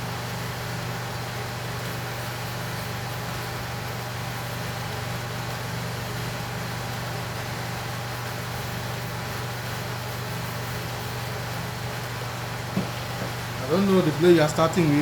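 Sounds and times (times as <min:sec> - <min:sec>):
low electric hum: 0:10.9 - 0:15.0.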